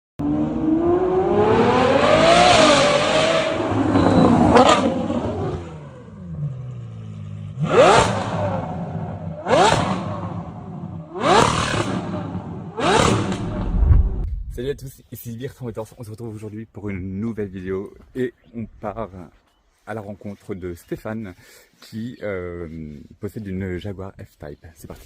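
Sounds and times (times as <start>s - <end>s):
car engine revving and idling: 0.2s - 14.4s
sharp throttle blips: 3.5s - 5.1s.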